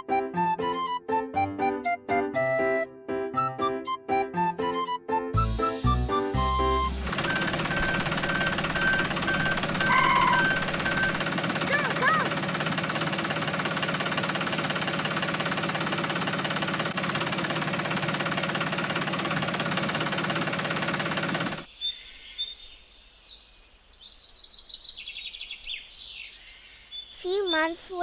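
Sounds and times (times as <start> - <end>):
small motor running: 7.0 - 21.7
birds chirping: 7.2 - 12.4, 21.4 - 28.0.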